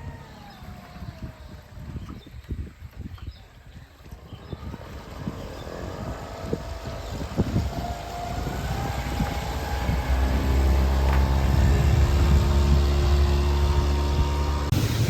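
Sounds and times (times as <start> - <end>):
outboard motor speeding up: 0.0 - 15.0
low drone: 4.2 - 15.0.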